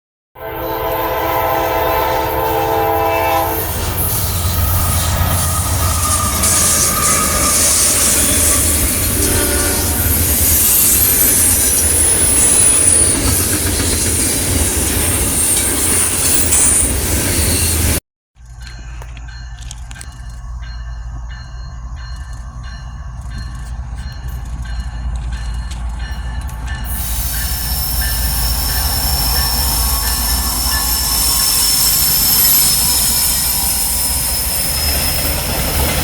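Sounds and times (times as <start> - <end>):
train horn: 0.4 - 11.5, 26.9 - 34.1
high wheel squeal: 0.9 - 18.0, 26.2 - 36.0
train wheels rumbling and clattering: 1.5 - 36.0.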